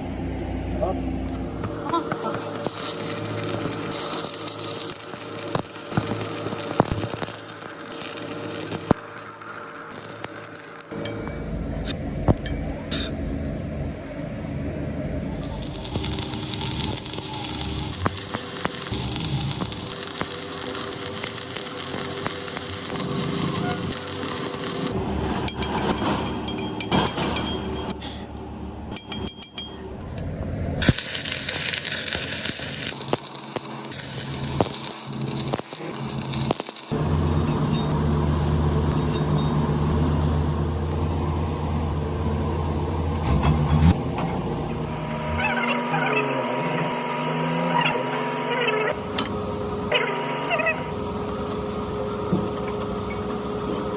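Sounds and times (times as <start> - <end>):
arc welding crackling sizzle: 1.7 - 11.0, 15.2 - 25.2, 30.8 - 37.4, 44.8 - 53.9
machine motor humming: 15.2 - 25.1, 44.4 - 53.9
sharp metallic clinks: 25.5 - 28.0, 28.9 - 29.9, 37.2 - 38.1, 38.9 - 40.0.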